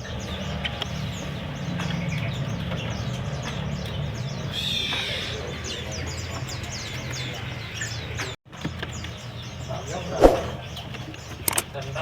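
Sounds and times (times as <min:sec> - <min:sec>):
bird trill: 0:00.0 - 0:08.1
songbirds chirping: 0:00.0 - 0:12.0.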